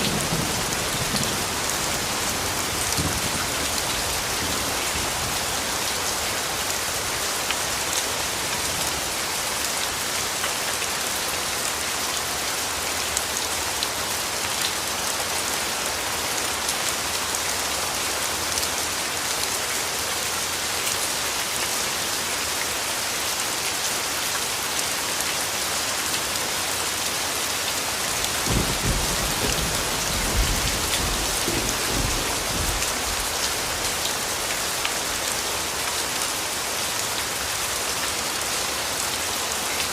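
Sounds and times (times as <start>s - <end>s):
steady rainfall hiss: 0.0s - 39.9s
distant thunder rumble: 28.4s - 33.3s.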